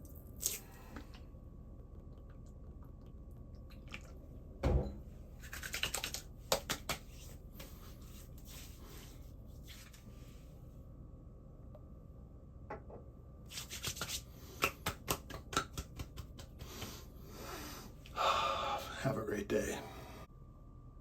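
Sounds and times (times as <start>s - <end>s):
dull thump: 4.6s - 5.0s.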